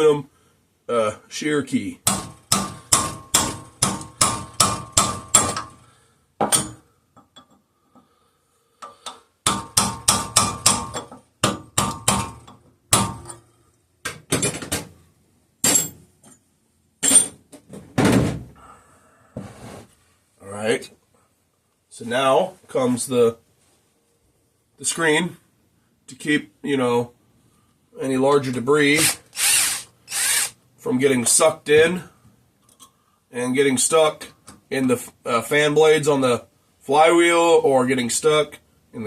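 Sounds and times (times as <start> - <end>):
hammer striking metal: 2.0 - 5.8.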